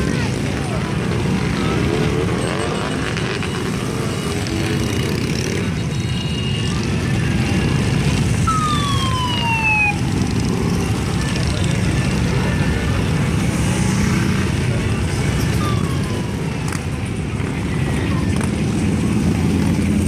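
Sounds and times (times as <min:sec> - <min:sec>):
motorcycles rumbling past: 0:00.0 - 0:05.8
siren-like falling tone: 0:08.4 - 0:10.5.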